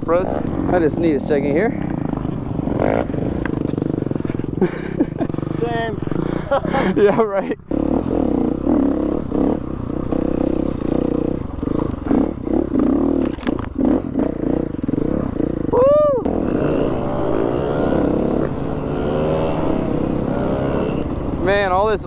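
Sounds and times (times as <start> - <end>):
dirt bike engine: 0.0 - 22.0
knocks and clatter over rough ground: 10.9 - 14.9.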